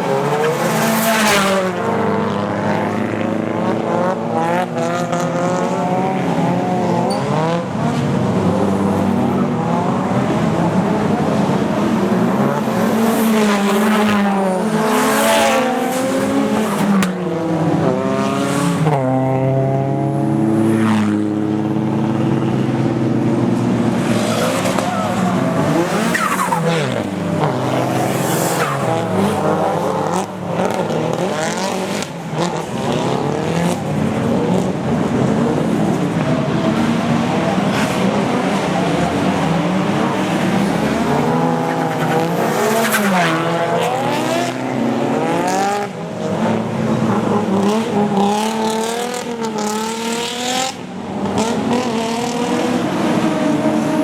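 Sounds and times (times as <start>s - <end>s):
car engines revving hard: 0.0s - 54.0s
tyre screeching: 24.0s - 30.2s.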